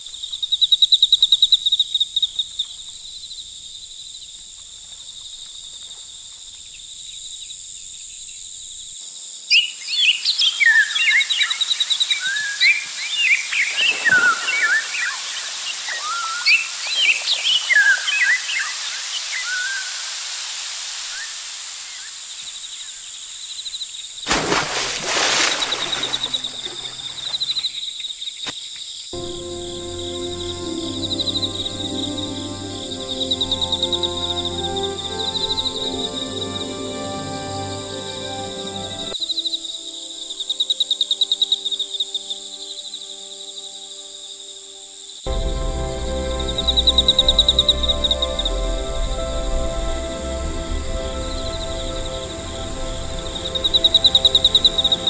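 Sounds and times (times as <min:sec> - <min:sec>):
insect drone: 0:00.0 - 0:55.0
insect trill: 0:00.0 - 0:55.0
birds chirping: 0:09.9 - 0:18.8, 0:24.7 - 0:28.5.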